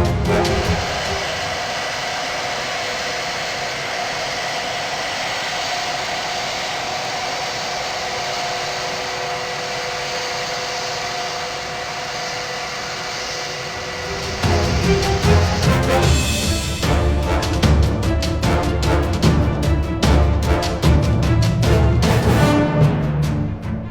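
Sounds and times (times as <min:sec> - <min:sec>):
music: 0:00.0 - 0:01.4, 0:14.0 - 0:23.9
jet engines running: 0:00.0 - 0:23.9.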